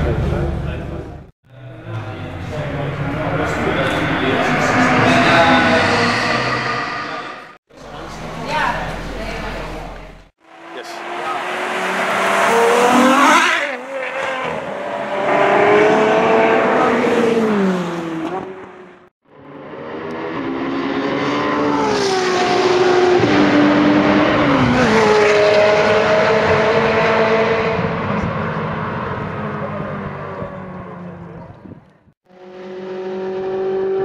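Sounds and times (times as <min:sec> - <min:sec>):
car engine revving hard: 0:01.6 - 0:18.9.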